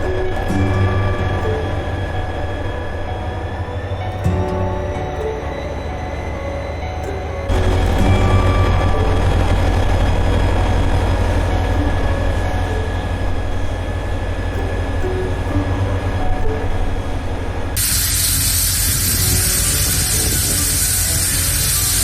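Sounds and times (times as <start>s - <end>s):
train rumbling: 0.0s - 22.0s
steady hiss: 17.7s - 22.0s.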